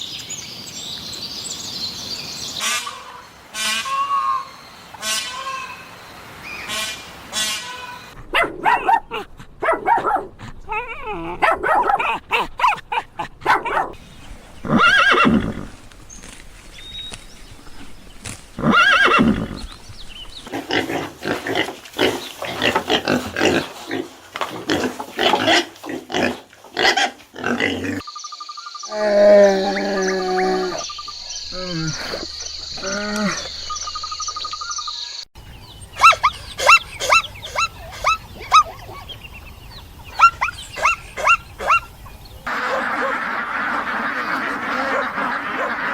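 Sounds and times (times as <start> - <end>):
farm animal calls: 13.5 - 15.8, 24.7 - 34.9, 35.6 - 45.9.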